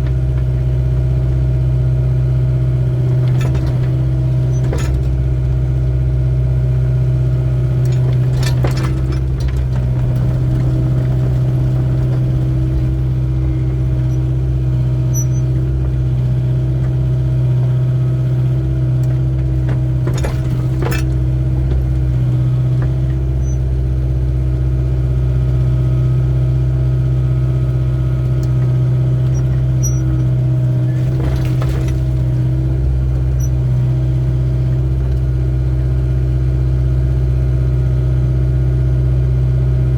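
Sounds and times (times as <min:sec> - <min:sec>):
excavator engine running: 0:00.0 - 0:39.9
metal clanks: 0:07.8 - 0:16.1, 0:19.1 - 0:23.6, 0:29.3 - 0:32.6.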